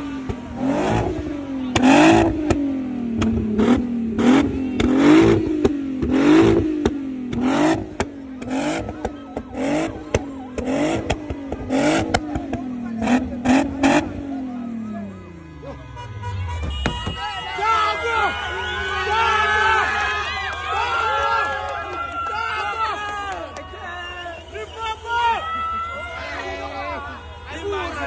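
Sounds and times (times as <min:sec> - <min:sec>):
car engine revving: 0:00.0 - 0:17.1.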